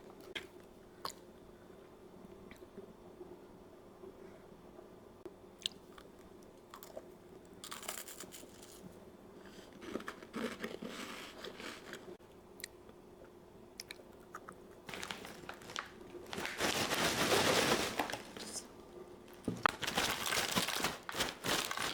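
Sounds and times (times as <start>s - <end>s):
person chewing crunchy food: 5.6s - 16.0s
small mouth clicks: 12.6s - 14.9s.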